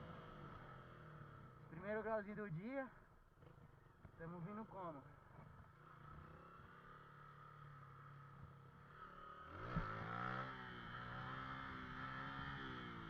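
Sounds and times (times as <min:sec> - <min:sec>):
motorcycle engine revving: 0:05.6 - 0:13.0.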